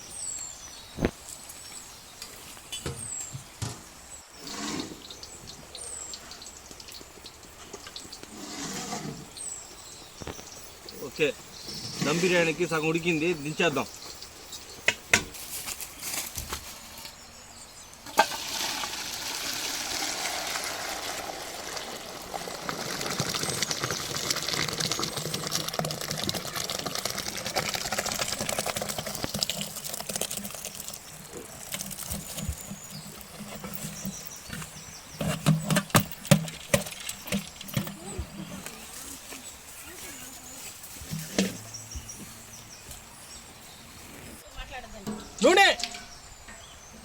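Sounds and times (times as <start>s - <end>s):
hot water pouring and splashing: 18.1s - 34.2s, 35.4s - 37.9s.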